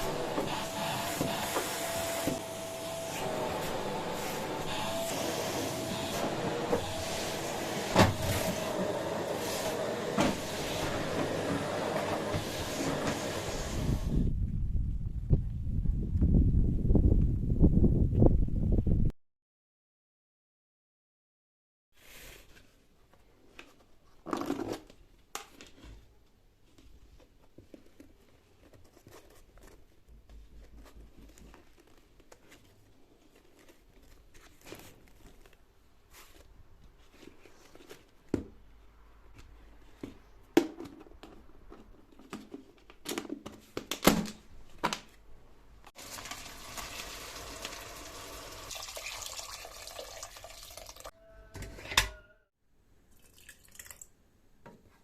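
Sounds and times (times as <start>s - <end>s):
rustling: 26.8s - 38.3s.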